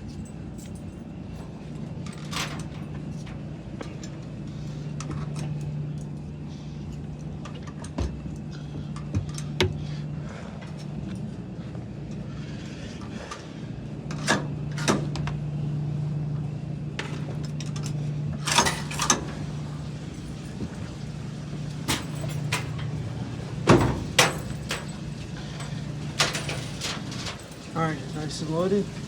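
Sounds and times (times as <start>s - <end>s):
low hum of machines: 0.0s - 29.0s
clothes knocking in washer drum: 19.1s - 29.0s.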